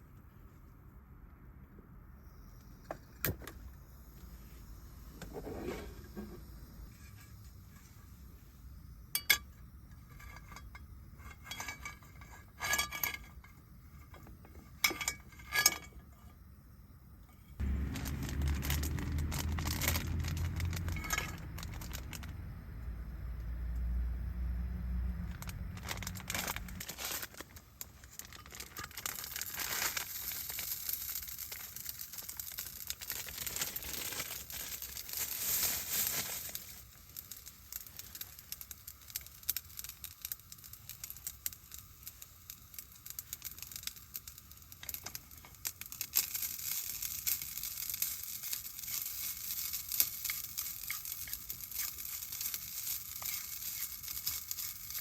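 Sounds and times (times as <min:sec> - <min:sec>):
plastic crinkling: 0:17.6 - 0:22.4, 0:25.2 - 0:41.8, 0:42.4 - 0:55.0.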